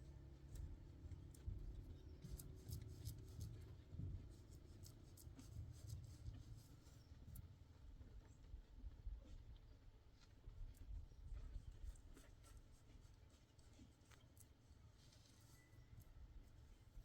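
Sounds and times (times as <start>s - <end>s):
faint scratching and scraping: 10.8s - 17.0s.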